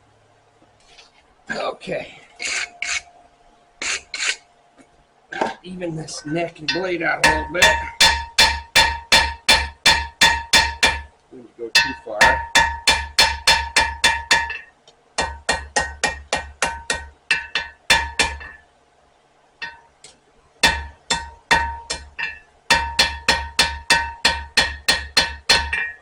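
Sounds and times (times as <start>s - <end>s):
hammer striking blade on anvil: 6.6s - 11.1s, 11.8s - 18.6s, 19.6s - 19.9s, 20.6s - 26.0s.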